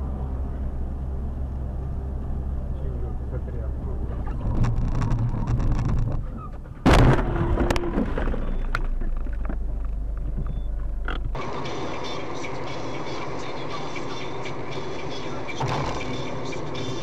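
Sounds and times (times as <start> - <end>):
car road noise: 0.0 - 17.0
loud bang: 6.8 - 8.6, 15.6 - 16.3.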